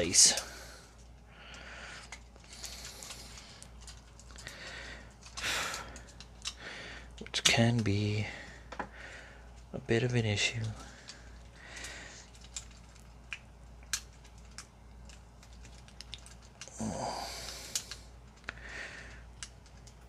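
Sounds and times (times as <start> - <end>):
plastic toy parts clicking: 5.1 - 6.6, 12.2 - 16.8, 17.5 - 18.6, 19.3 - 20.0.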